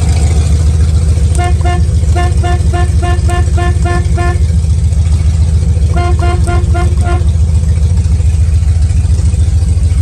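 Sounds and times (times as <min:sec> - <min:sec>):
steady low rumble: 0:00.0 - 0:10.0
car horn beeping: 0:01.3 - 0:04.6, 0:05.9 - 0:07.4.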